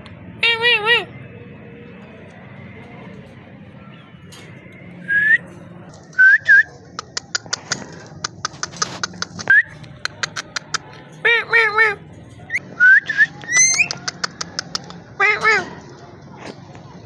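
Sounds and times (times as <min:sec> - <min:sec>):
parrot clicking: 0:07.0 - 0:10.9, 0:13.4 - 0:15.0
parrot whistling: 0:12.8 - 0:14.0
parrot voice-like calls: 0:13.4 - 0:15.7.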